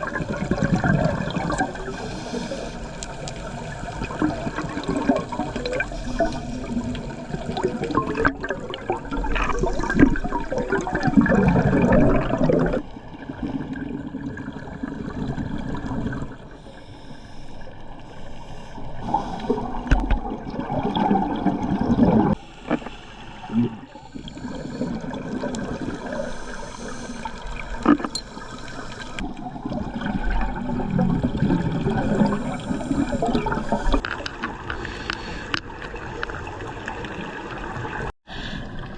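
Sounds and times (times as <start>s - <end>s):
underwater bubbles gurgling: 0.0s - 38.9s
diver breathing: 1.7s - 3.5s, 5.5s - 6.9s, 16.4s - 20.0s, 22.3s - 29.3s, 32.1s - 34.0s.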